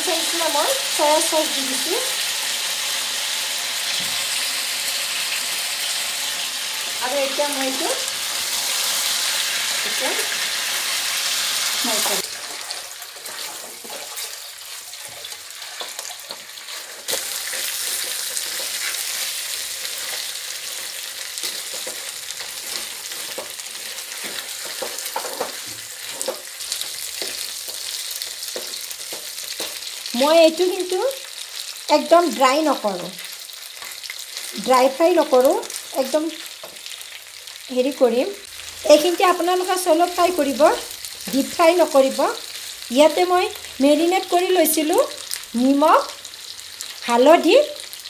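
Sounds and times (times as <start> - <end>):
chicken sizzling in hot oil: 0.0 - 48.0
spatula scraping a pan: 12.3 - 29.9.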